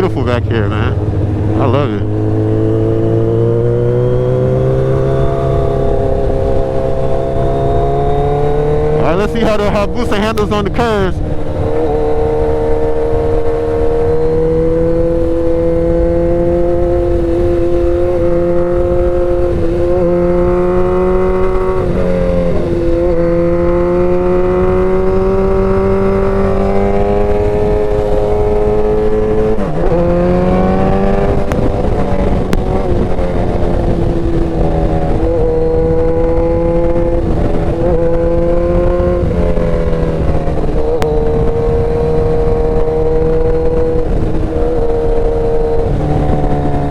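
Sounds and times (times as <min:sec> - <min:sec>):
wind noise: 0:10.9 - 0:46.9
motorcycle engine running: 0:11.2 - 0:46.9.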